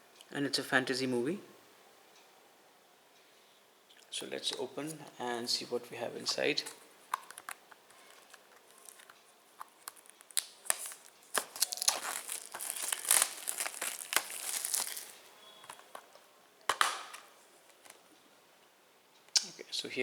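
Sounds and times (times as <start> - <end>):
plastic shrink-wrap tearing: 7.2 - 15.9.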